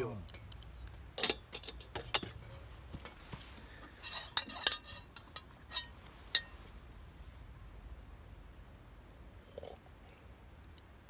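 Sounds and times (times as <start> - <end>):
tableware clinking: 1.2 - 2.4, 4.0 - 6.6.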